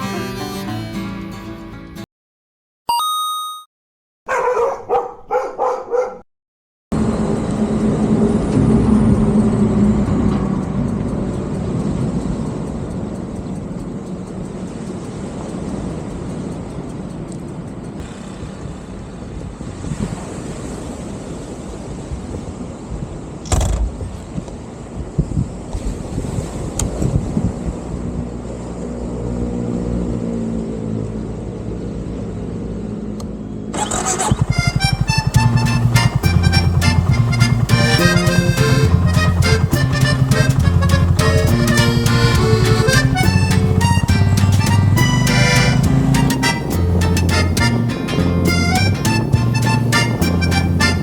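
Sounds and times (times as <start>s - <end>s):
short beep: 2.9s - 3.7s
motorcycle engine and road rumble: 7.0s - 21.8s, 22.4s - 51.0s
wind noise on microphone: 14.4s - 28.9s
brief pitched sounds: 33.8s - 51.0s.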